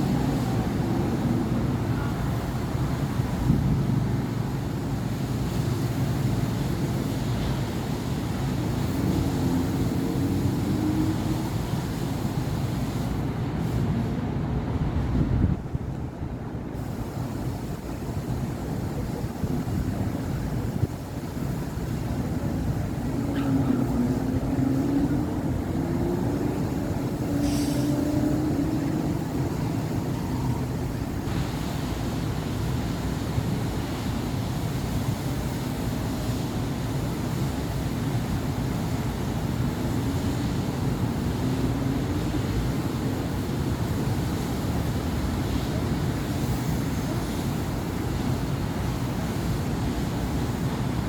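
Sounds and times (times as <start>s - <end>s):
passing engines: 0.0s - 16.8s, 18.1s - 51.0s
traffic rumble: 0.0s - 51.0s
brief high hiss: 27.3s - 28.1s.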